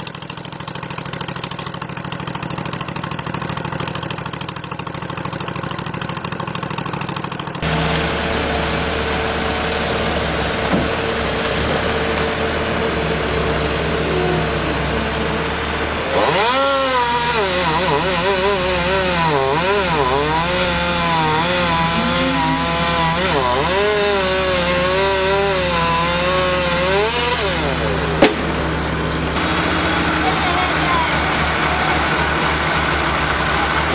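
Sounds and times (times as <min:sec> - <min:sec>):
chainsaw running: 0:00.0 - 0:33.9
sharp knock: 0:28.2 - 0:28.7.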